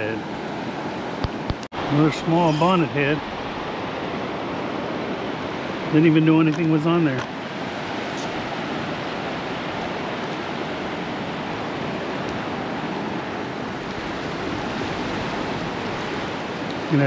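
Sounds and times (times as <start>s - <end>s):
surf breaking on sandy beach: 0.0s - 17.0s.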